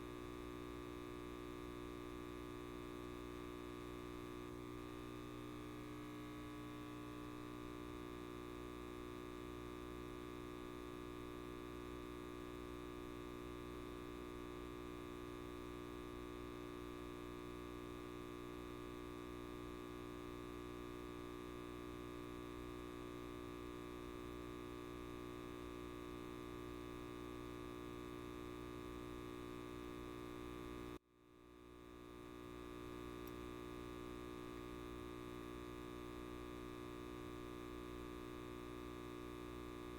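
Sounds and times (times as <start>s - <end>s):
light bulb buzzing: 22.0s - 39.9s.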